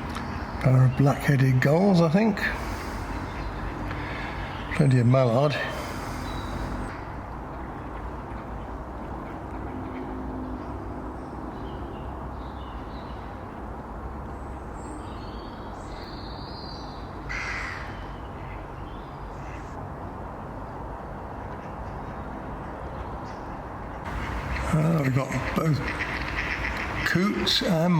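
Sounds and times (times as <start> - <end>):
faint high bird calls: 2.4 - 7.0, 21.6 - 27.9
crow cawing: 2.5 - 4.7, 5.6 - 6.9, 17.3 - 18.6, 24.1 - 27.2
low outdoor rumble: 24.0 - 27.9.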